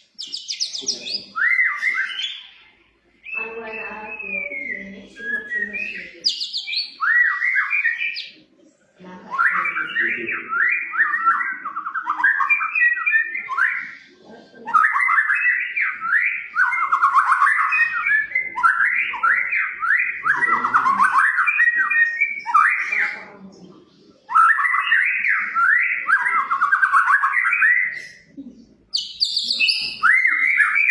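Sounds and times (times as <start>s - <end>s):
songbird singing varied whistles: 0.2s - 2.6s, 3.2s - 8.3s, 28.9s - 30.9s.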